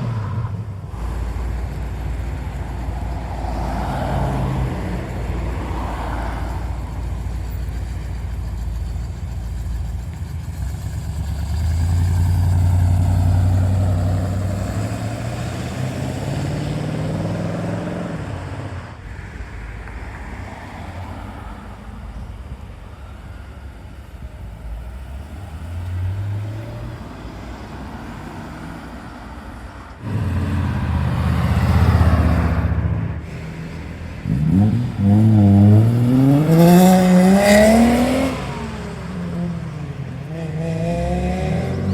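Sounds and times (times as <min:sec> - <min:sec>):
cars accelerating past: 0:00.0 - 0:08.1, 0:10.8 - 0:41.9
car engine revving hard: 0:11.5 - 0:18.8, 0:30.0 - 0:41.9.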